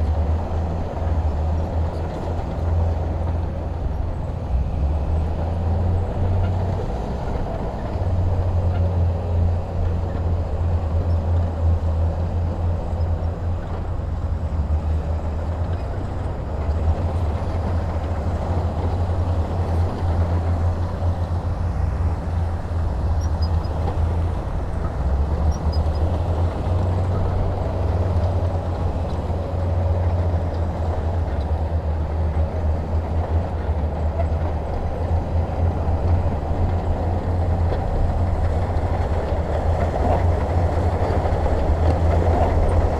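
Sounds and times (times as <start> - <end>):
diesel engine drone: 0.0 - 42.9.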